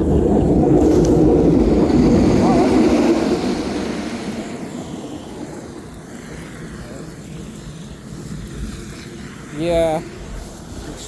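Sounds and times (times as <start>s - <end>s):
vehicle driving past: 0.0s - 6.7s
low background rumble: 0.0s - 11.0s.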